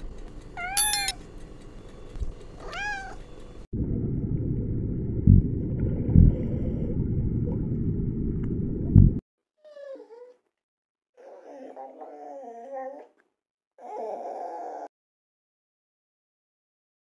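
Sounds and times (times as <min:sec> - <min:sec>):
low underwater rumble: 0:03.8 - 0:09.2
dog whining: 0:09.6 - 0:10.4, 0:11.2 - 0:13.2, 0:13.8 - 0:14.9.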